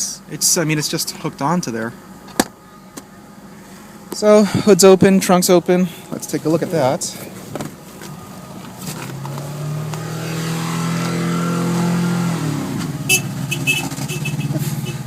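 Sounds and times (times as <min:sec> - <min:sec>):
vehicle engine revving: 0:07.0 - 0:15.0.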